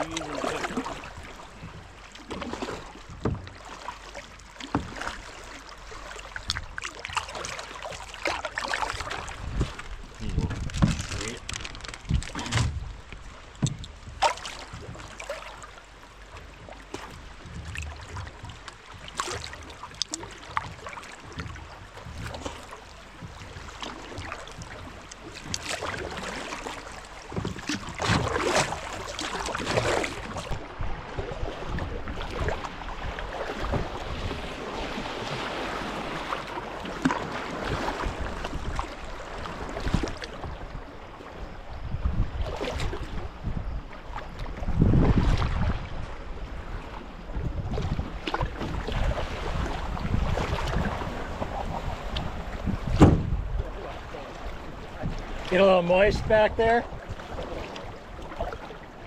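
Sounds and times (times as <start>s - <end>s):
paddles splashing in water: 0.0s - 59.0s
wind buffeting microphone: 9.0s - 15.1s, 41.8s - 55.4s.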